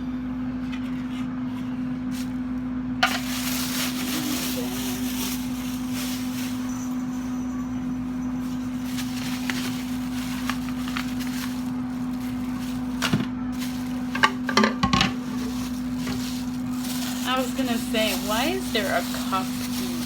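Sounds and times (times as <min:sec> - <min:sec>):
plastic cookware clicks and knocks: 0:14.1 - 0:15.2.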